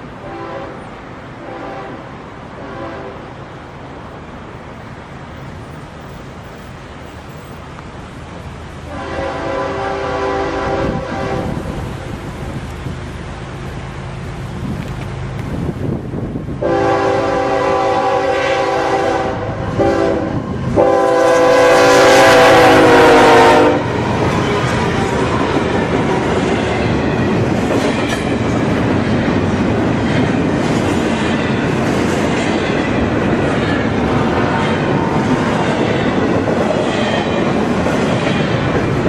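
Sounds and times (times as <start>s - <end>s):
train cars rolling on rails: 0.0s - 39.0s
locomotive air horn blasts: 0.2s - 2.0s, 2.6s - 3.3s, 8.9s - 12.1s, 16.6s - 26.3s.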